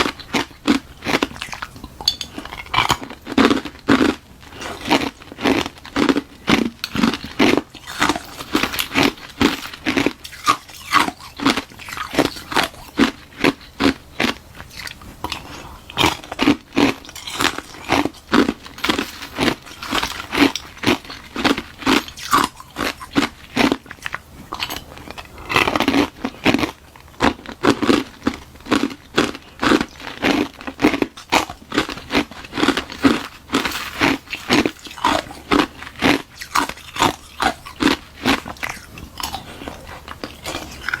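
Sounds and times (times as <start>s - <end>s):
ice being crunched by teeth: 2.5s - 24.8s, 29.1s - 41.0s.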